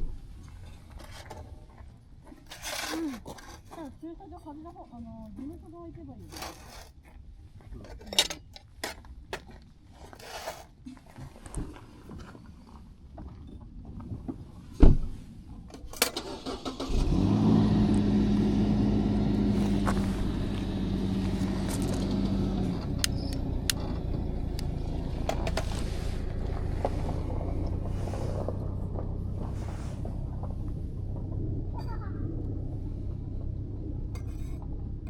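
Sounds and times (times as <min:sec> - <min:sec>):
car engine starting and idling: 0:15.7 - 0:35.0.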